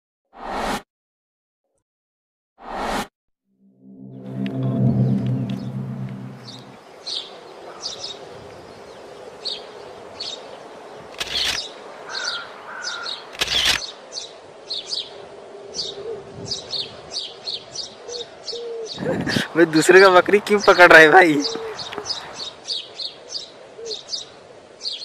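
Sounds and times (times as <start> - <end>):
low tone: 3.5 - 6.8
brief rushes of noise: 3.8 - 6.8
small birds chirping: 6.4 - 25.0.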